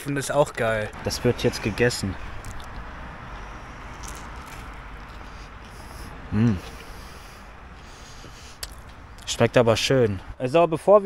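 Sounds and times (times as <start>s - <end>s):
chewing food: 2.2s - 6.0s.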